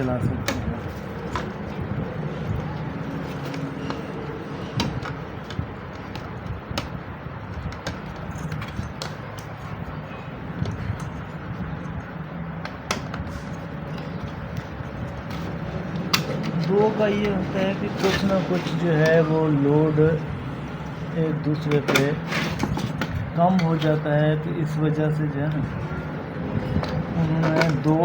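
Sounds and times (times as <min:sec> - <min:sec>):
small parts clicking and tapping: 0:04.8 - 0:09.8.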